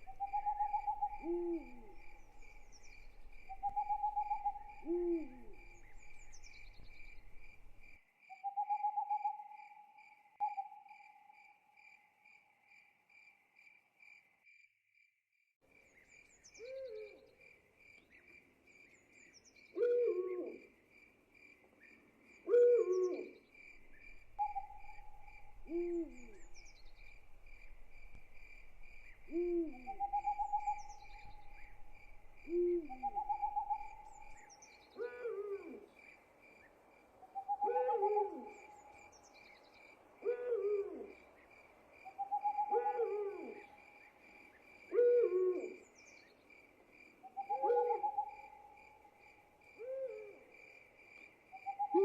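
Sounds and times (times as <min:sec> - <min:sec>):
owl hooting: 0:00.0 - 0:07.5, 0:19.8 - 0:20.6, 0:22.5 - 0:35.9, 0:37.3 - 0:39.0, 0:40.2 - 0:41.2, 0:42.1 - 0:43.8, 0:44.9 - 0:45.8, 0:47.3 - 0:48.7, 0:49.8 - 0:50.4, 0:51.6 - 0:52.0
crickets chirping: 0:00.0 - 0:14.7, 0:15.7 - 0:52.0.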